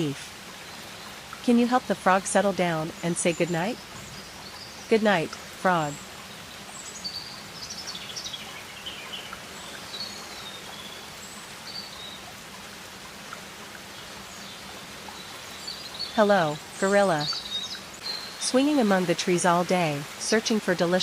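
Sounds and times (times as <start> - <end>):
rainforest background hiss: 0.0 - 21.0.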